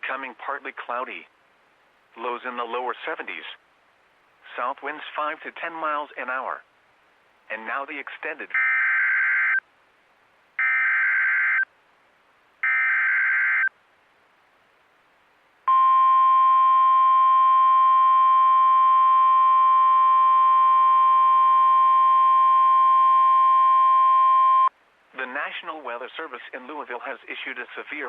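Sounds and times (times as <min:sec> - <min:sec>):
steady warning alarm tone: 0:08.6 - 0:09.6, 0:10.6 - 0:11.6, 0:12.6 - 0:13.7.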